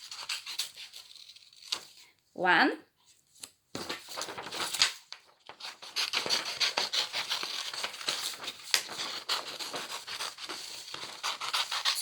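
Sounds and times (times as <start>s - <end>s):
paper rustling: 0.0s - 2.2s, 3.1s - 12.0s
scissors snipping paper: 5.6s - 12.0s.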